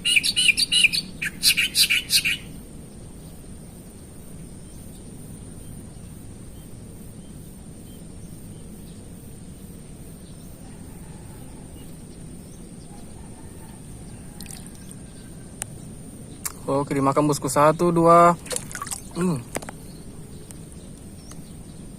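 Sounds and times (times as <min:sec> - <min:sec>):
faint bird chirps: 0:00.0 - 0:02.6, 0:10.2 - 0:16.8
low background rush: 0:00.0 - 0:21.9.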